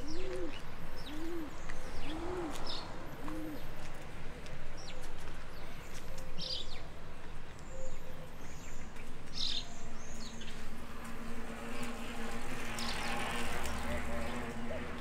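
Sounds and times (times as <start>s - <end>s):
small birds chirping: 0.0s - 4.1s.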